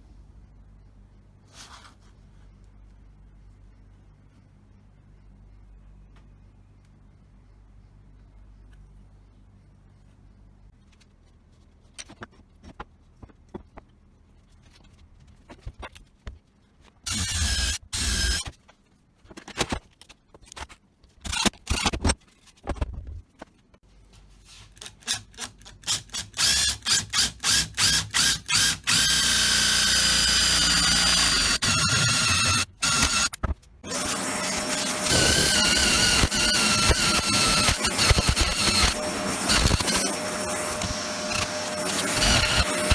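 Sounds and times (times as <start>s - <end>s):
power tool whining: 17.1s - 18.4s, 27.8s - 42.9s.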